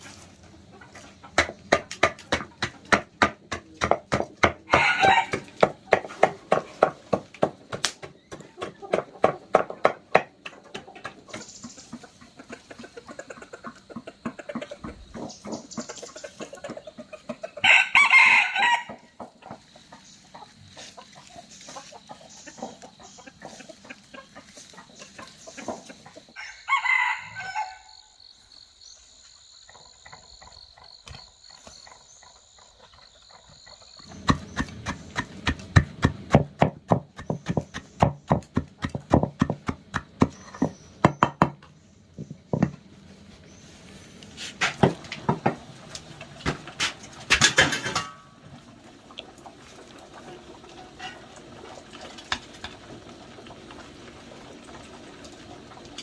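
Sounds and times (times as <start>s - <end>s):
rooster crowing: 4.7s - 5.5s, 17.6s - 19.2s, 26.3s - 28.2s.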